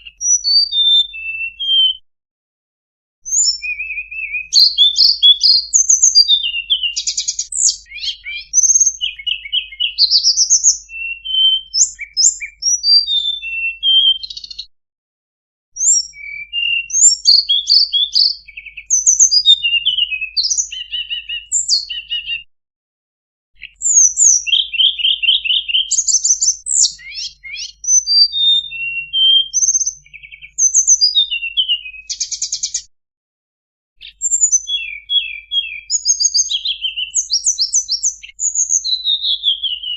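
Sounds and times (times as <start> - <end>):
songbird singing: 0.0 - 2.0, 3.2 - 14.7, 15.8 - 22.5, 23.6 - 32.9, 34.0 - 39.9.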